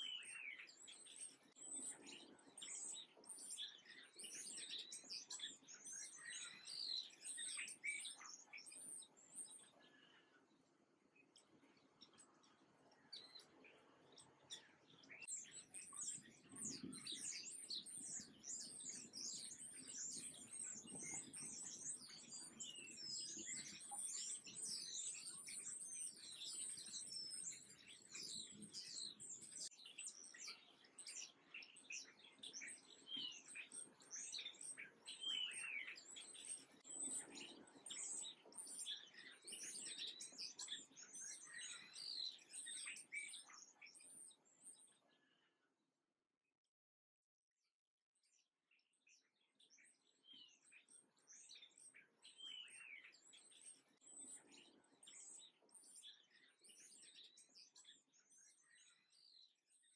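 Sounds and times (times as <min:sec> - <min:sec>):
songbirds chirping: 0:00.0 - 0:45.7, 0:48.2 - 0:59.9.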